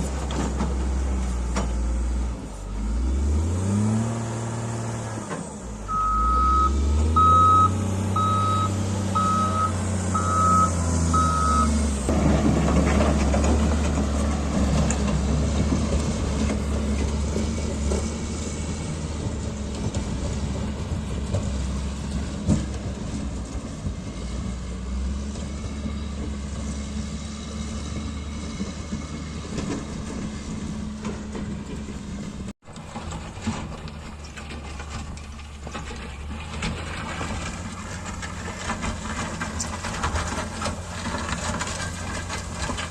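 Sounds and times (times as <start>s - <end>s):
diesel engine running: 0.0s - 42.9s
backup alarm beeping: 5.9s - 11.7s.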